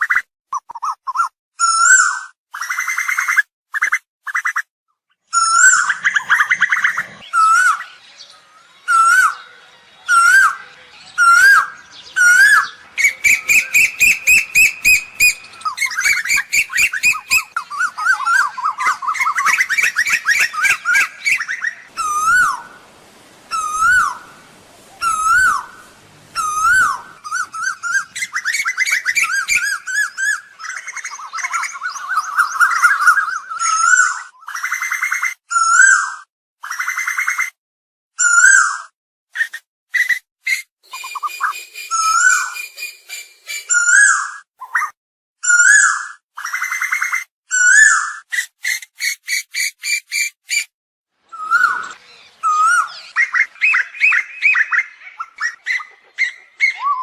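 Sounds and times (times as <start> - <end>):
koel calling: 8.8 - 34.1, 51.4 - 57.0.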